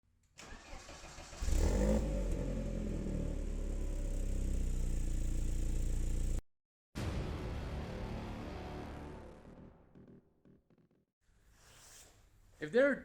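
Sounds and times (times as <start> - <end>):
car engine starting and idling: 0.4 - 6.4.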